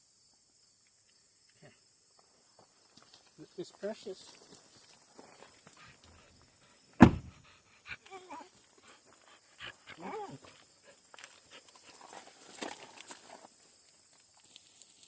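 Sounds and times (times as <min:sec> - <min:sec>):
loud thump: 0:07.0 - 0:07.4.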